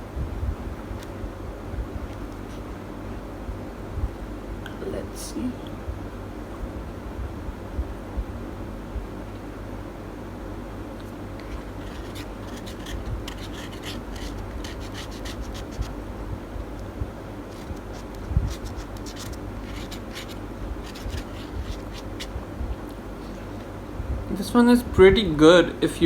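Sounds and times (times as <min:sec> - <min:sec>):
steady low hum: 0:00.0 - 0:26.0
crackly scratching of eating food: 0:01.9 - 0:03.0, 0:10.8 - 0:23.8.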